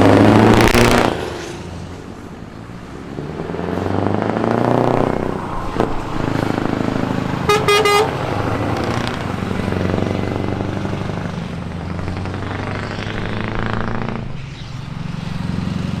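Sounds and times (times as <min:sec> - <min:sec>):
truck engine running: 0:01.7 - 0:16.0
horn double toot: 0:07.4 - 0:08.2.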